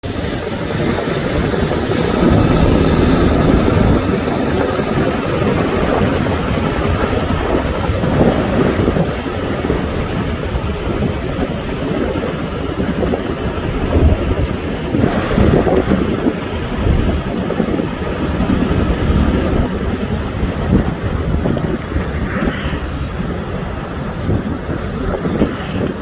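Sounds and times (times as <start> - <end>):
helicopter rotor and engine: 0.0 - 19.9.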